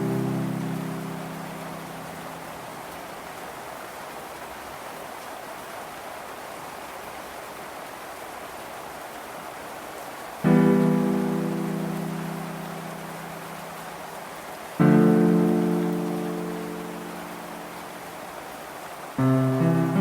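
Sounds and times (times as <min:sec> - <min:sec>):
low piano note: 0:00.0 - 0:02.6, 0:10.5 - 0:14.2, 0:19.2 - 0:20.0
steady rain hiss: 0:00.0 - 0:20.0.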